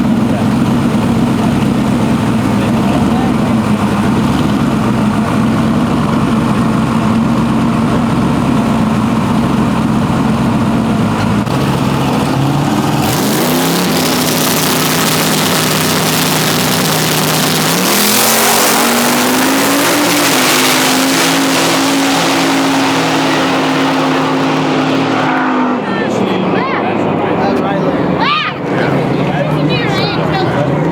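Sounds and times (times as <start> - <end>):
truck engine idling and revving: 0.0 - 30.9
loud rushing noise: 11.0 - 30.9.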